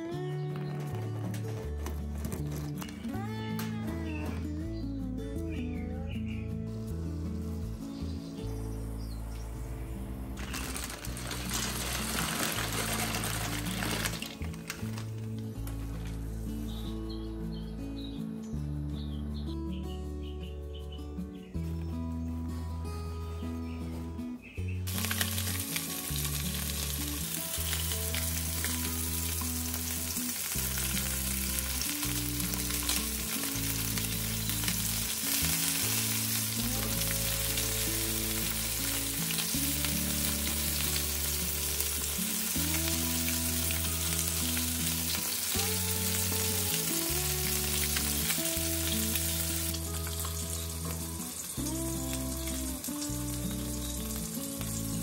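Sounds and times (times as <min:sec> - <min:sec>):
fish sizzling in frying pan: 0:10.4 - 0:15.1, 0:24.9 - 0:55.0.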